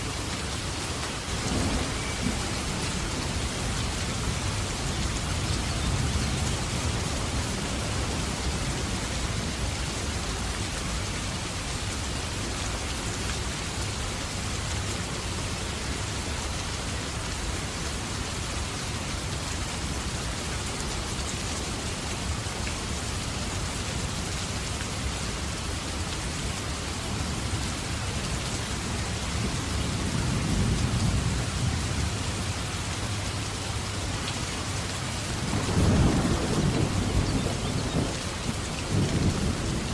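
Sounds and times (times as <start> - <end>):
steady rain: 0.0 - 39.9
low rumble of thunder: 1.2 - 9.8, 29.1 - 32.9, 35.2 - 39.9.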